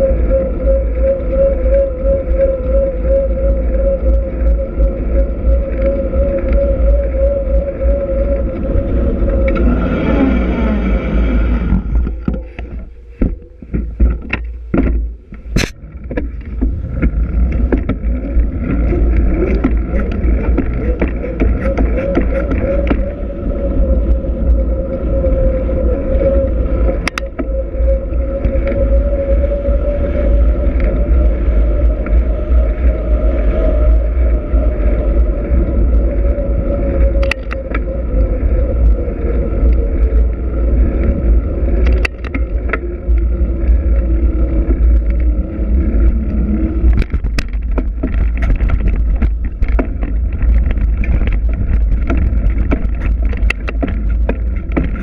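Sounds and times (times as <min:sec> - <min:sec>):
steady hum: 0:00.0 - 0:55.0
wind rumble on microphone: 0:00.0 - 0:55.0
sharp clicks and knocks: 0:12.0 - 0:18.2, 0:46.9 - 0:55.0.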